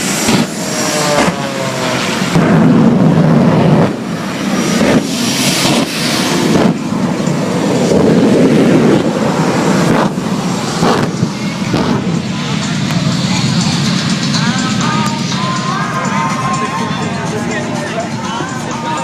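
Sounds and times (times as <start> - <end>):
jet engine surging: 0.0 - 19.0.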